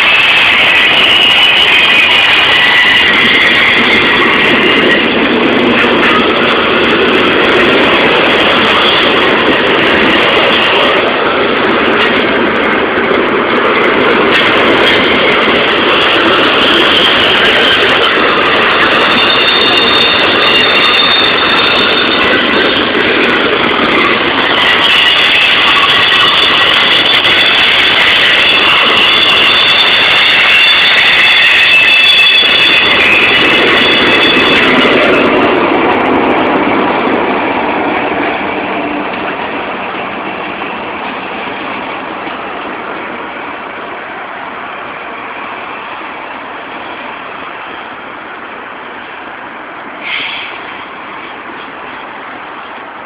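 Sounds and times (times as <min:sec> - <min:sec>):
freight train rumble: 0:00.0 - 0:53.0
freight train wheels squealing: 0:00.0 - 0:53.0
brief high squeak: 0:50.0 - 0:50.6.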